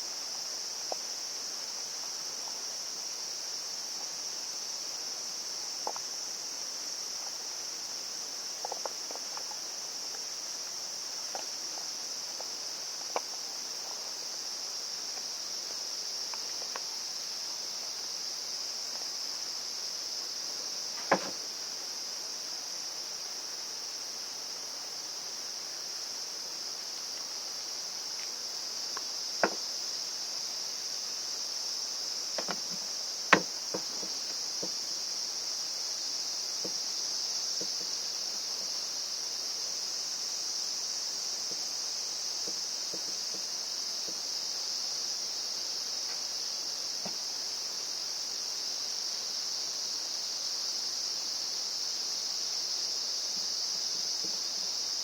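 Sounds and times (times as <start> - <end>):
high insect chorus: 0.0 - 55.0
sharp clicks and knocks: 21.0 - 21.4, 32.4 - 32.8.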